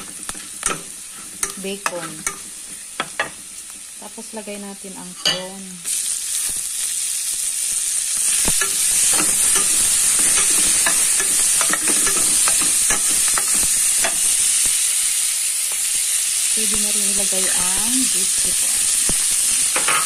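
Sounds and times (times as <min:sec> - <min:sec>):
food sizzling in a frying pan: 0:00.0 - 0:20.0
metal spatula scraping a pan: 0:08.2 - 0:14.3.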